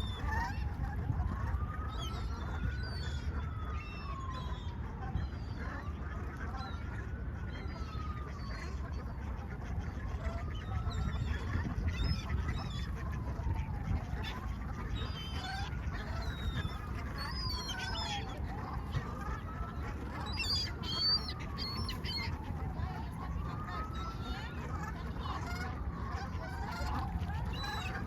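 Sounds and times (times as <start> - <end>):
siren wailing: 0.0 - 28.0
small birds chirping: 14.1 - 24.5.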